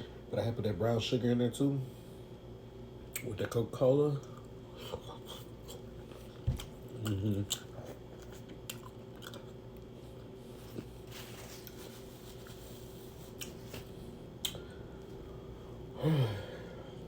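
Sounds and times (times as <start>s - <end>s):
person chewing food: 4.2s - 14.7s.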